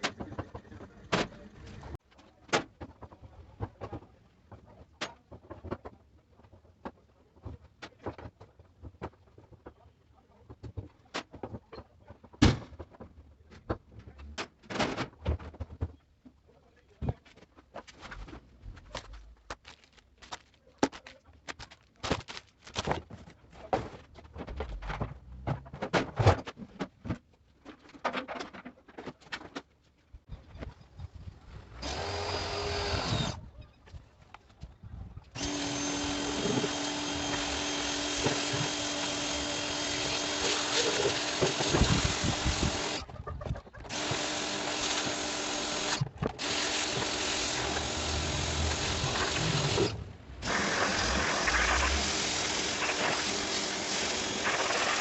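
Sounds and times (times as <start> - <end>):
power tool motor whine: 31.8 - 33.4, 35.4 - 43.0, 43.9 - 55.0.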